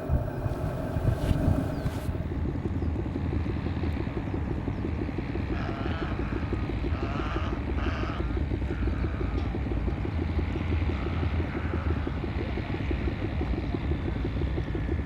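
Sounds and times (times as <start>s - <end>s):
rapid low throbbing: 0.0s - 2.4s.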